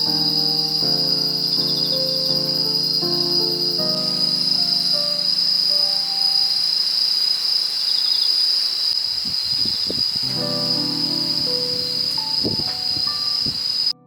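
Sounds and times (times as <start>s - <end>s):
soft background music: 0.0s - 6.6s, 10.3s - 14.0s
night insects chirring: 0.0s - 14.0s.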